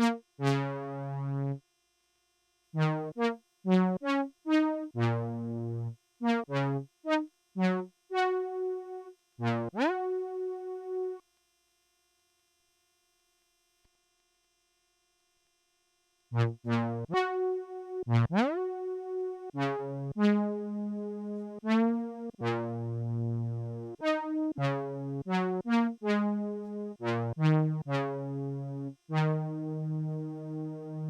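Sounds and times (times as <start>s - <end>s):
synthesizer melody: 7.6s - 11.2s.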